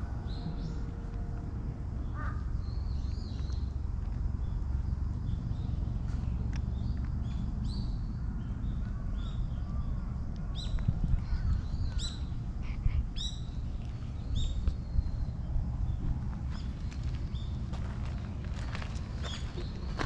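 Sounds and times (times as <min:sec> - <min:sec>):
steady low rumble: 0:00.0 - 0:20.0
birds calling: 0:05.2 - 0:20.0.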